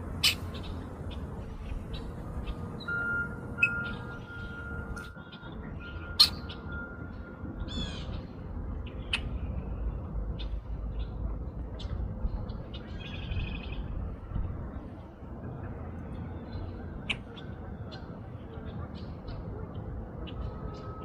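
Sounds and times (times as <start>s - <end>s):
steady low rumble: 0.0s - 21.0s
blackbird call notes: 0.2s - 8.3s
buzzy bird trill: 2.4s - 8.1s.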